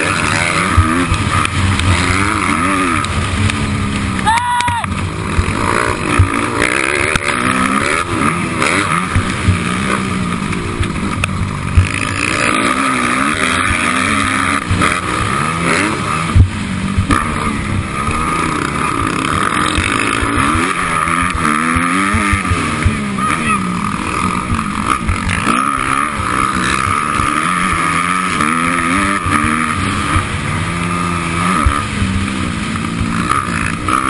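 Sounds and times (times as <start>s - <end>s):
sharp thumps: 0.0s - 33.9s
dirt bike engine revving: 0.0s - 34.0s.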